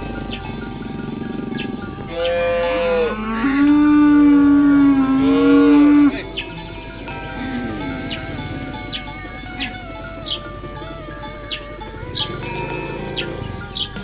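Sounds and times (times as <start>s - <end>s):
cow mooing: 0.0s - 14.0s.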